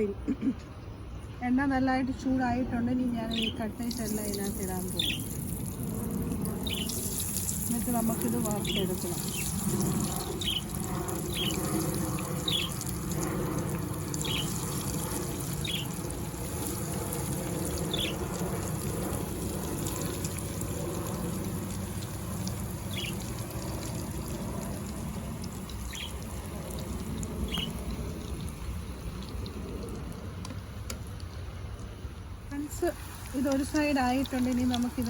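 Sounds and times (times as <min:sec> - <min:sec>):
small bird chirping: 0:03.2 - 0:05.5, 0:06.6 - 0:12.9, 0:14.1 - 0:14.8, 0:15.5 - 0:16.0, 0:17.8 - 0:18.2, 0:22.9 - 0:23.4, 0:25.8 - 0:26.2, 0:27.4 - 0:27.9
chicken frying in oil: 0:03.3 - 0:31.2, 0:32.5 - 0:35.0.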